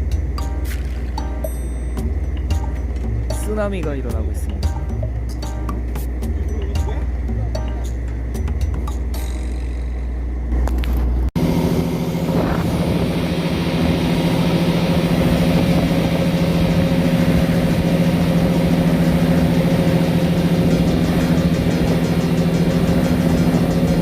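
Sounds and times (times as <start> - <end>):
background music: 0.0 - 10.4
boat engine humming: 0.0 - 24.0
wind and water rushing: 11.4 - 24.0.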